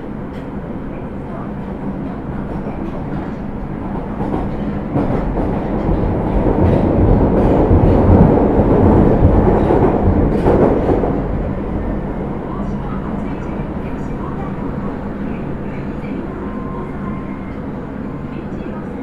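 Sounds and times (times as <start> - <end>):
subway train running: 0.0 - 19.0.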